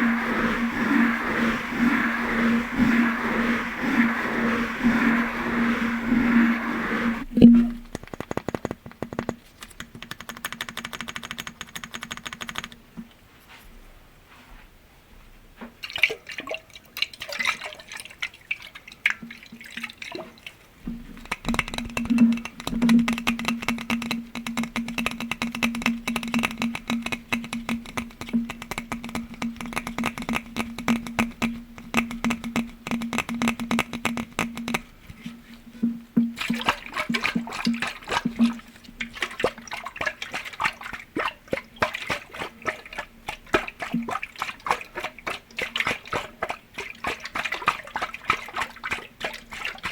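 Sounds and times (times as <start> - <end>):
low ringing tone: 0.0 - 7.9
rapid tapping on glass: 0.0 - 12.8, 20.9 - 35.0, 35.8 - 49.9.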